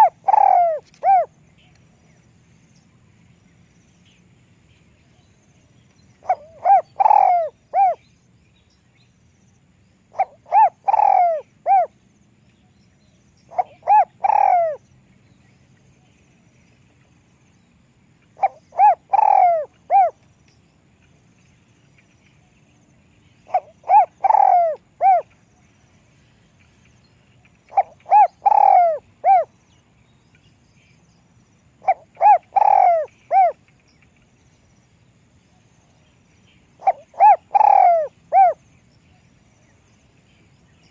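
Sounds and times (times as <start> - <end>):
dove cooing: 0.0 - 1.3, 6.2 - 8.0, 10.1 - 11.9, 13.5 - 14.8, 18.4 - 20.2, 23.5 - 25.3, 27.7 - 29.5, 31.8 - 33.6, 36.8 - 38.6.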